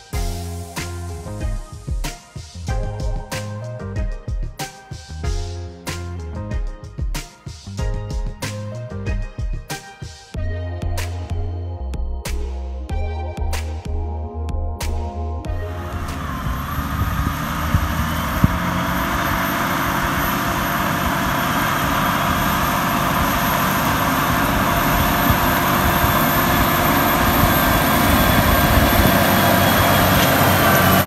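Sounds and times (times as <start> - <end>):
tractor engine droning: 10.4 - 31.0.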